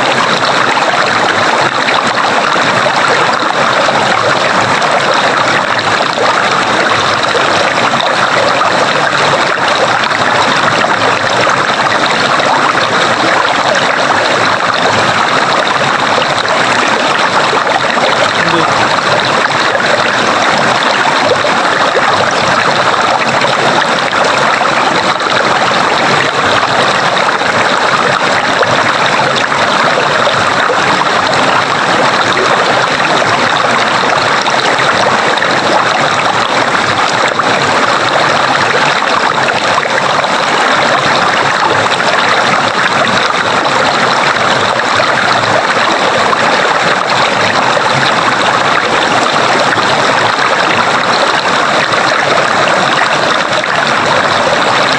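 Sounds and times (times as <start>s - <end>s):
stream water rushing: 0.0s - 54.9s.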